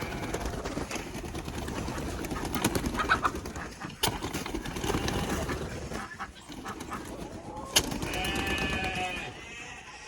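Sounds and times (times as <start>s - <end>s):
poultry clucking softly: 1.8s - 10.0s.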